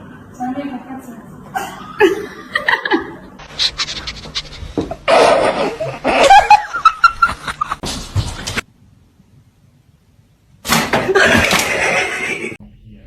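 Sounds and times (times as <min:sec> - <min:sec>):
person laughing: 0:04.9 - 0:07.8, 0:11.1 - 0:12.6.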